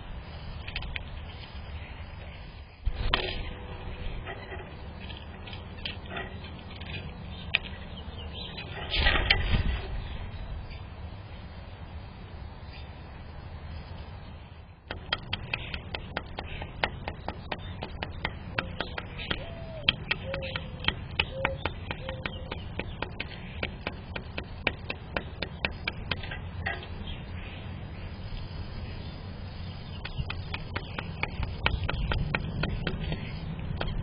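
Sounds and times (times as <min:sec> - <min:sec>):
rapid clicks and taps: 0:14.9 - 0:26.4, 0:30.0 - 0:34.0.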